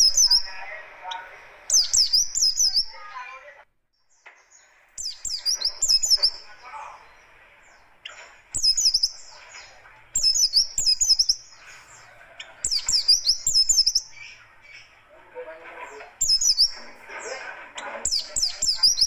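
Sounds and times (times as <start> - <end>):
white-eye chattering song: 0.0 - 19.0.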